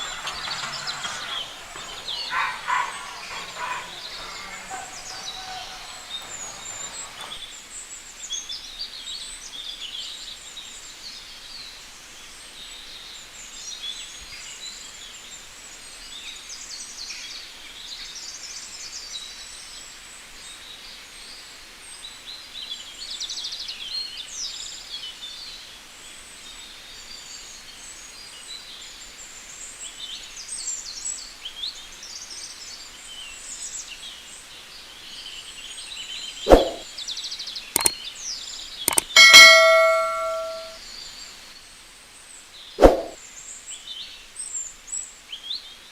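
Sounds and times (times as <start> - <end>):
birds chirping: 0.0 - 7.5, 38.9 - 40.8.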